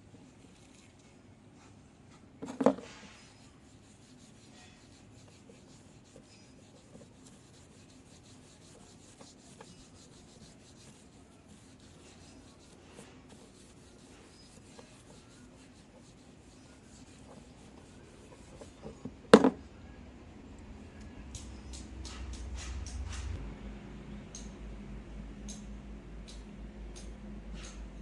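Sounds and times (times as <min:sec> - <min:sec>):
rubbing and scraping: 0:02.4 - 0:19.6.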